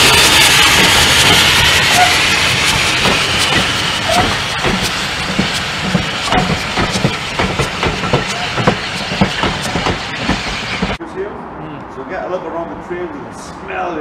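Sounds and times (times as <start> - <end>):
steam locomotive hiss: 0.0 - 11.0
train wheels clicking over rail joints: 0.0 - 11.0.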